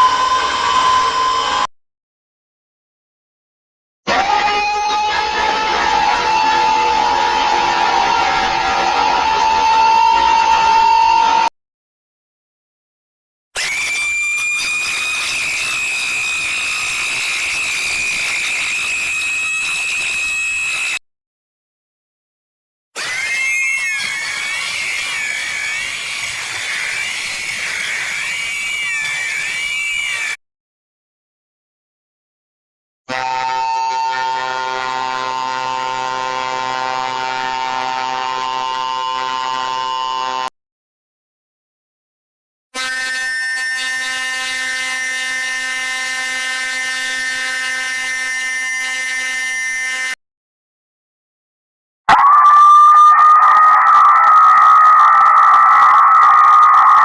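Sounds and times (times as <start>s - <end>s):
high-pitched wavering whistle: 0.0s - 1.7s, 52.1s - 57.0s
loud steady buzzing tone: 33.1s - 40.5s, 43.7s - 50.2s.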